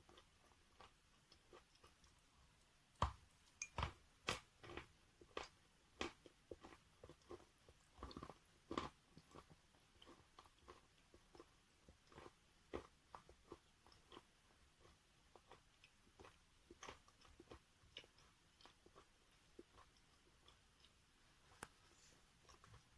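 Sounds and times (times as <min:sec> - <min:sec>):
chalk crunching while chewed: 0:03.6 - 0:21.0.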